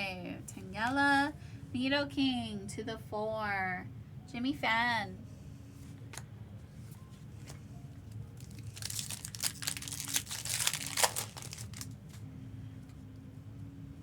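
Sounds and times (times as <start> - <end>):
foil wrapper crinkling: 8.2 - 12.2.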